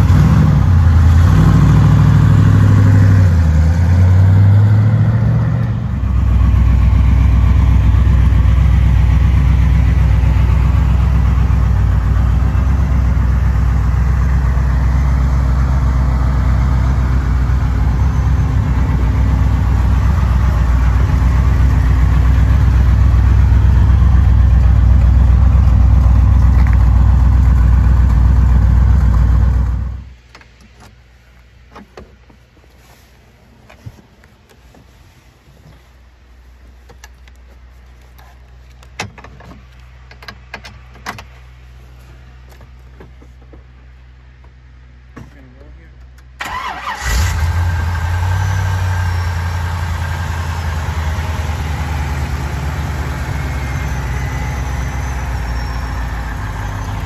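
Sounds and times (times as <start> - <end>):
car engine revving and idling: 0.0 - 30.2, 46.5 - 57.0.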